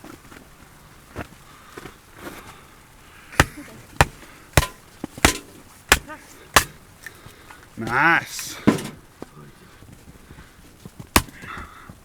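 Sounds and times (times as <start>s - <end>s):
axe chopping wood: 3.4s - 6.8s, 11.1s - 11.6s.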